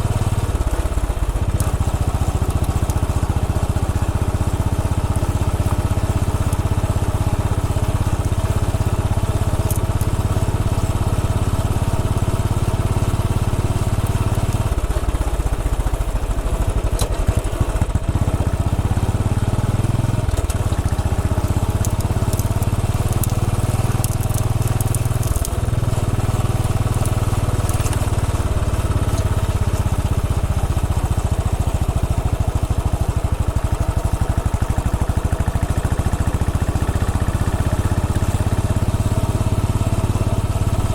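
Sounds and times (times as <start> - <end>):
motorcycle engine running: 0.0 - 40.9
crackling clicks: 0.6 - 3.2, 7.9 - 10.3, 13.6 - 15.1, 20.1 - 31.0.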